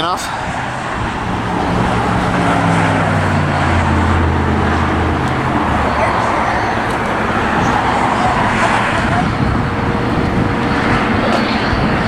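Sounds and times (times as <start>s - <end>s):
road traffic roar: 0.0s - 12.0s
vehicle engine low drone: 0.0s - 12.0s.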